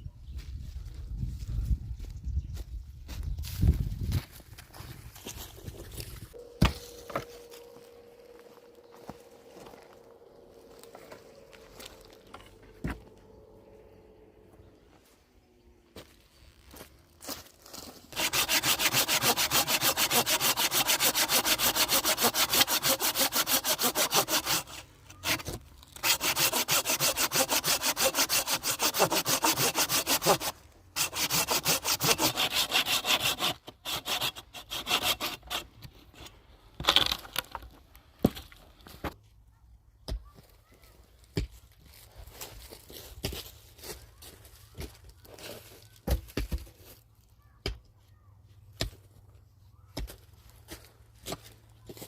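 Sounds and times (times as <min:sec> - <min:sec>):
hand saw cutting wood: 0:17.8 - 0:35.9.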